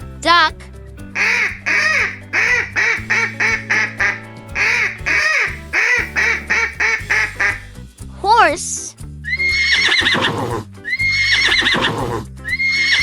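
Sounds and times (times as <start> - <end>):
light background music: 0.0 - 13.0
duck quacking: 1.2 - 7.7.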